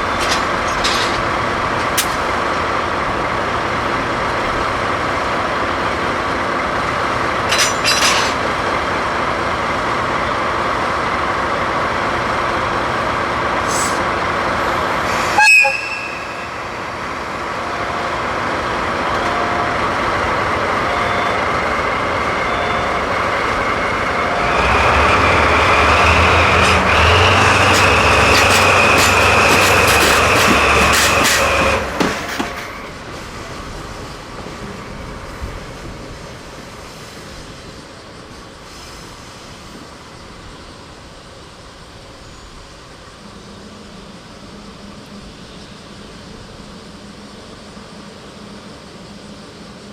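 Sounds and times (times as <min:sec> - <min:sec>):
train rolling on rails: 0:00.0 - 0:49.9
high squeal: 0:15.0 - 0:17.1.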